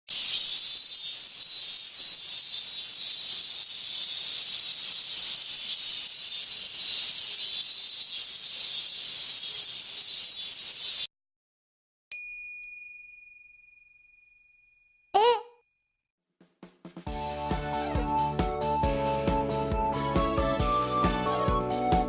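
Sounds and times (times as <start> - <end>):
cicadas chorus: 0.1 - 11.1.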